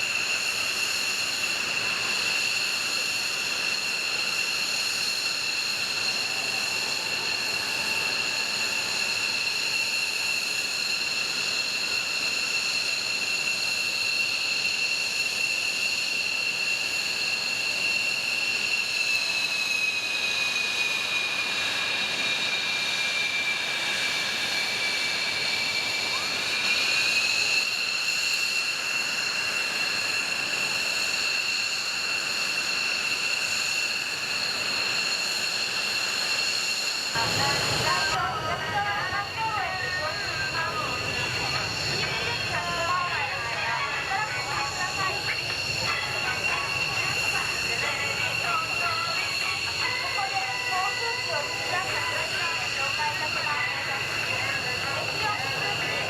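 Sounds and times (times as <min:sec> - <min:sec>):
jet engine whine: 0:00.0 - 0:56.0.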